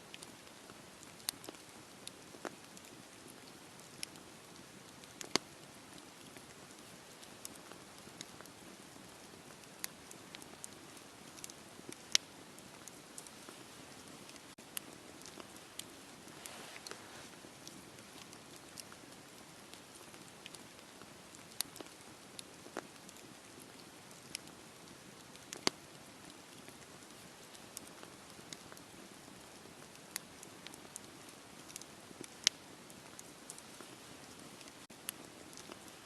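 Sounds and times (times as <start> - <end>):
fire crackling and popping: 0.1 - 36.0
fire hissing: 15.3 - 17.8.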